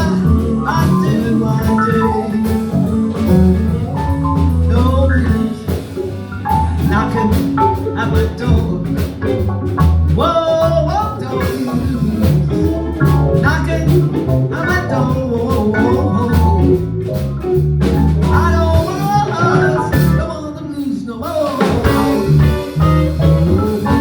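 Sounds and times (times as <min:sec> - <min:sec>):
sliding lead guitar line: 0:00.0 - 0:20.9, 0:21.5 - 0:24.0
live blues band playing: 0:00.0 - 0:24.0.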